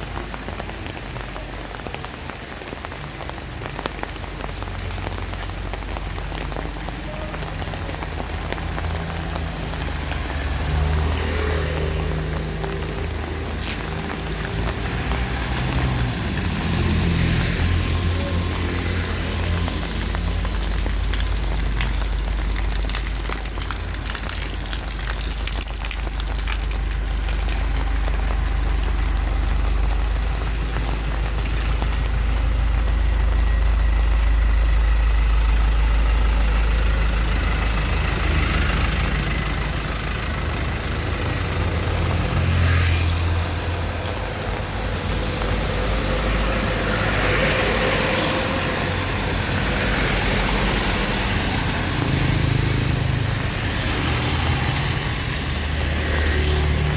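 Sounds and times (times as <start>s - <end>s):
heavy rain pouring: 0.0s - 56.9s
deep low rumble: 4.6s - 38.3s.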